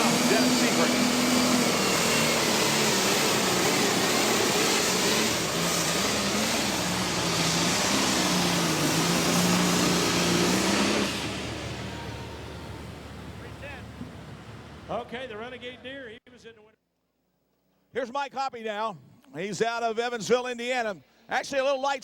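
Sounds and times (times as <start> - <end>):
tractor engine howling at full throttle: 0.0 - 15.8.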